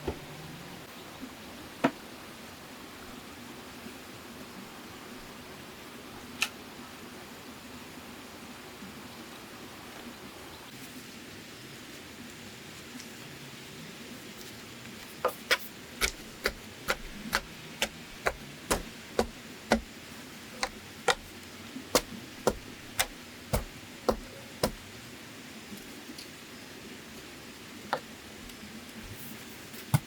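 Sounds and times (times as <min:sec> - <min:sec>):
tool knocking on wood: 0:16.0 - 0:19.9, 0:20.6 - 0:21.3, 0:22.0 - 0:24.8.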